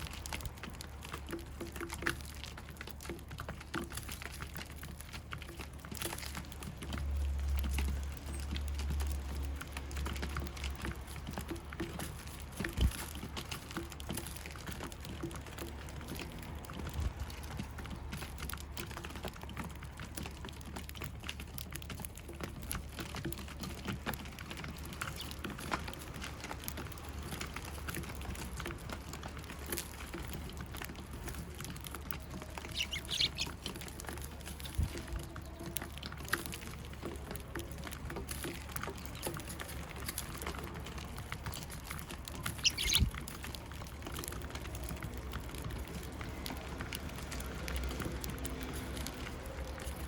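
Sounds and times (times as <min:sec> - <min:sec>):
sparrows chirping: 0:25.0 - 0:25.4, 0:32.1 - 0:35.9, 0:38.9 - 0:40.3, 0:42.3 - 0:43.3.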